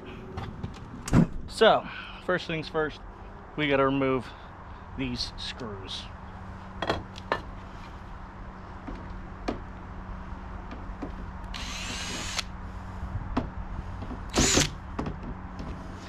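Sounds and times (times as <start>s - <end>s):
power drill motor whine: 11.5s - 12.5s, 14.3s - 14.8s.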